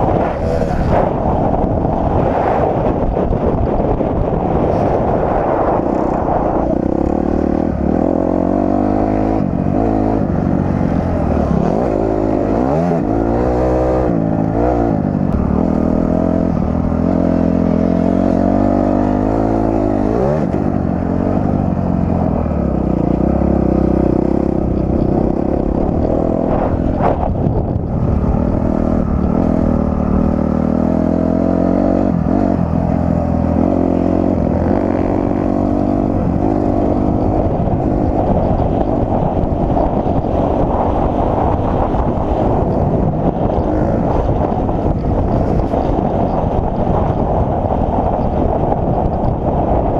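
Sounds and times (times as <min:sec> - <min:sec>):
dirt bike engine revving: 0:04.3 - 0:21.8.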